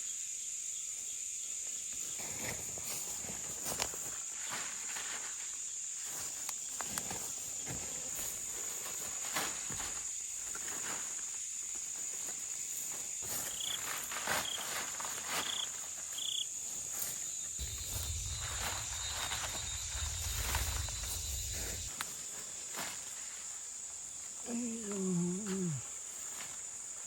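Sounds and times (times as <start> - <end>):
insects shrilling: 2.0 - 26.9
footsteps in undergrowth: 2.2 - 23.6.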